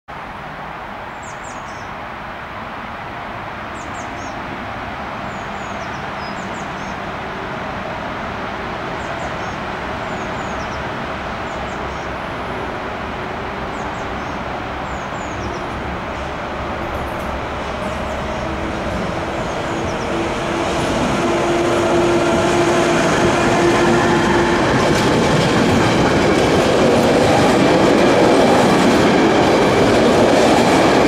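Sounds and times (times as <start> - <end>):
small songbird singing: 5.3 - 7.0, 9.0 - 10.8, 13.7 - 15.8, 19.4 - 20.2.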